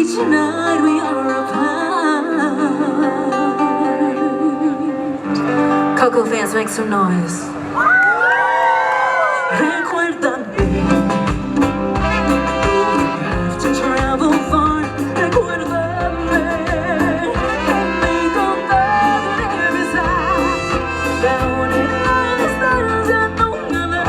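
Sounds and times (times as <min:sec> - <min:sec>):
live band playing: 0:10.6 - 0:24.0
steady bass beat: 0:10.6 - 0:24.0.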